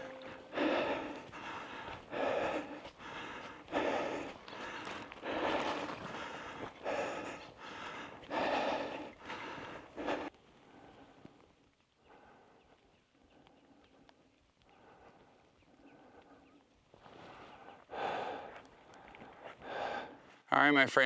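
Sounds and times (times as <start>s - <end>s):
person breathing hard: 0.0s - 11.0s, 17.9s - 20.2s.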